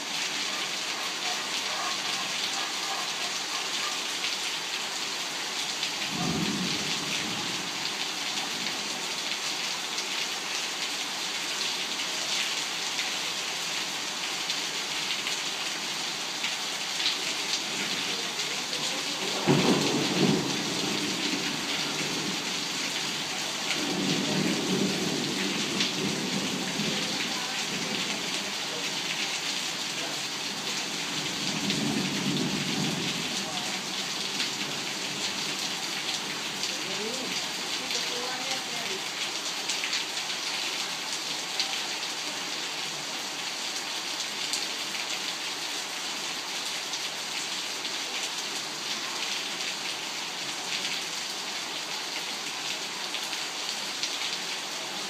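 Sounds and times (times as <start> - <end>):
torrential rain: 0.0 - 55.0
thunder rumbling: 19.2 - 22.4.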